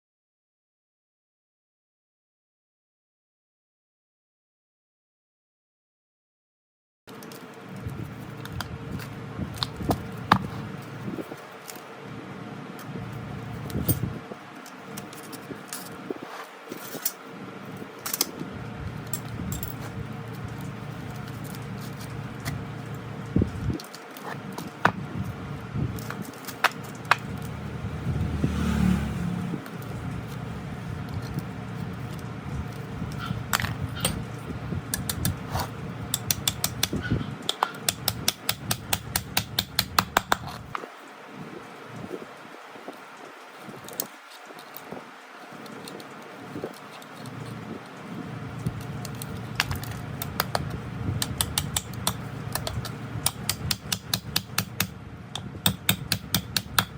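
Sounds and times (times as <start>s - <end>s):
metal parts clinking: 19.0s - 19.9s.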